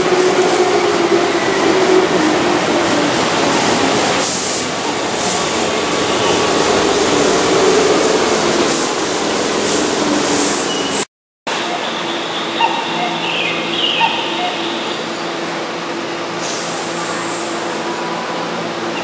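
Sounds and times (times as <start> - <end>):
train wheels rumbling on rail: 0.0 - 11.1
brief high hisses: 16.4 - 18.0.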